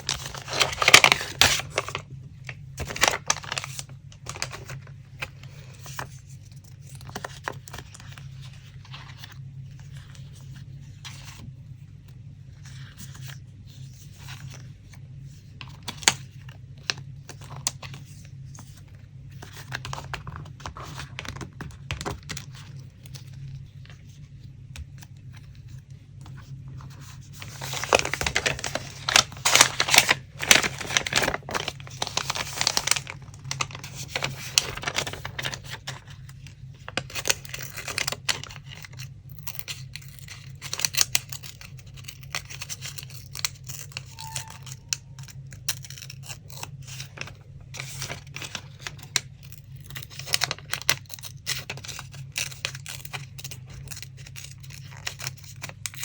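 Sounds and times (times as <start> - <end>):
paper rustling and tapping: 0.0 - 10.4, 15.6 - 39.0, 50.0 - 56.0
paper crinkling and tearing: 0.0 - 11.4, 15.7 - 56.0
low steady hum: 0.0 - 56.0.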